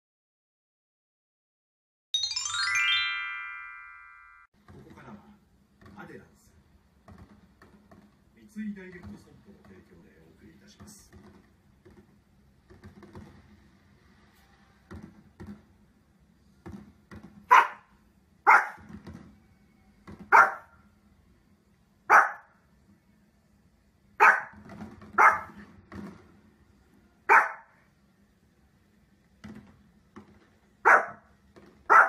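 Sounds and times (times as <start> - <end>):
dog barking: 17.5 - 18.9, 20.3 - 20.8, 22.1 - 22.6, 24.2 - 24.6, 25.2 - 25.6, 27.3 - 27.8, 30.8 - 31.3.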